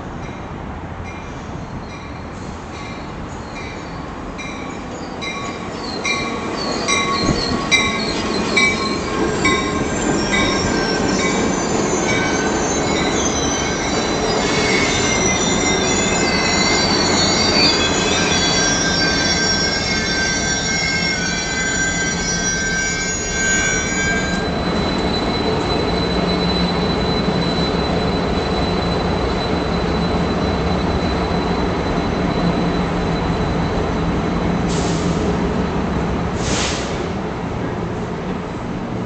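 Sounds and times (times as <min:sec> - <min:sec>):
train wheels and brakes squealing: 0:01.1 - 0:38.1
bell ringing: 0:08.6 - 0:24.6.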